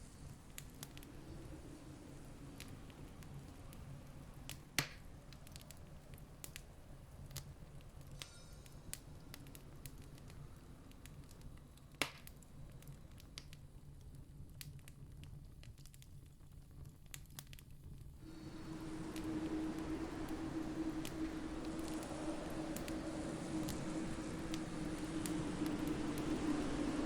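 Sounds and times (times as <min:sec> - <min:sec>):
campfire crackling and popping: 0:08.9 - 0:27.0
low rumble: 0:18.2 - 0:27.0.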